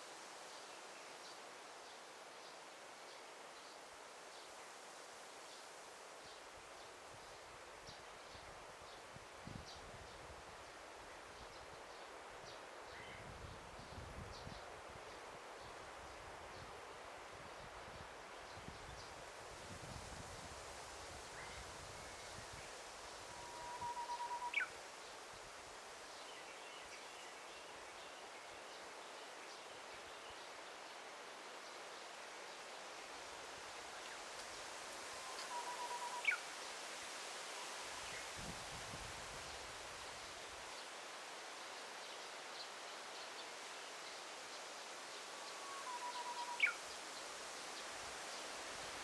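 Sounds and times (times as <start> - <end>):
steady outdoor hiss: 0.0 - 49.0
bird singing whistled notes: 23.3 - 24.7, 35.2 - 36.4, 45.4 - 46.8
distant bird chirps: 45.6 - 46.8.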